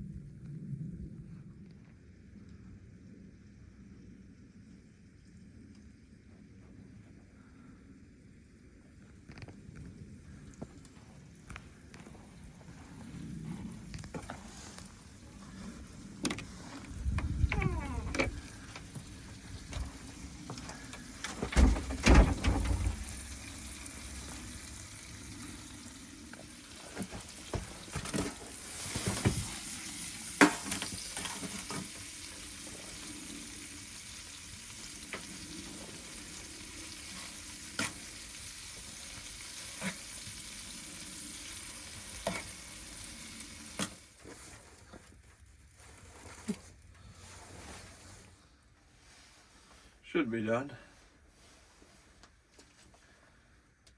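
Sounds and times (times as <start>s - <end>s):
meat sizzling in a pan: 22.9s - 44.0s.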